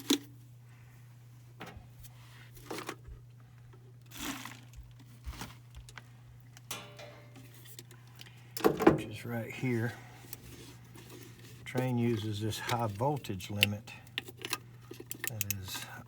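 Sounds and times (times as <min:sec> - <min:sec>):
steady low hum: 0:00.0 - 0:16.0
hands handling small metal parts: 0:10.3 - 0:16.0.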